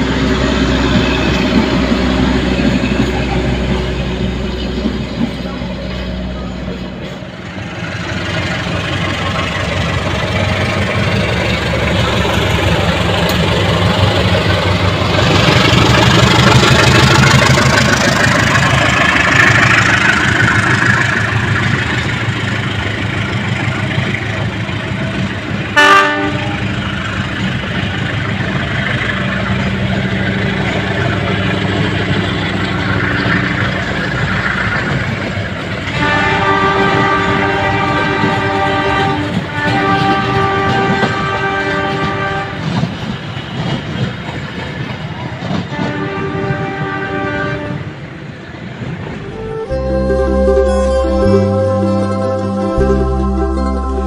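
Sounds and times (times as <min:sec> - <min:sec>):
train rumbling on rails: 0:00.0 - 0:54.0
train horn blast: 0:25.7 - 0:27.0, 0:35.8 - 0:42.9, 0:45.7 - 0:48.0, 0:49.1 - 0:54.0.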